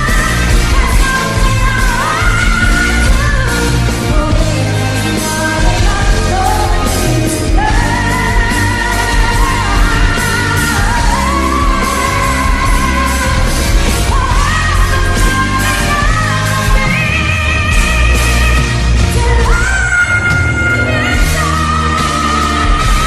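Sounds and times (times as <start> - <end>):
band playing: 0.0 - 23.0
woman singing: 0.0 - 23.0.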